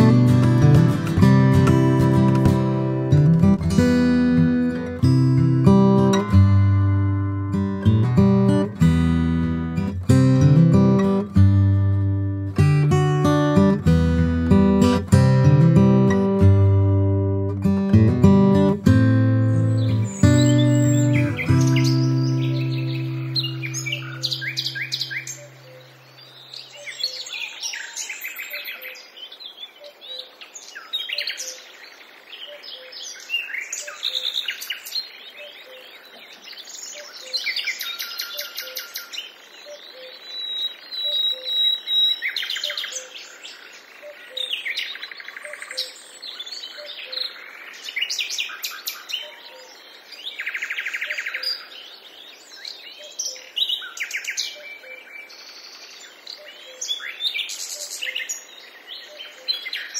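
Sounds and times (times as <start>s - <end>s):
wild birds chirping and trilling: 18.5s - 59.9s
bird whistle: 19.7s - 25.8s, 37.7s - 43.1s.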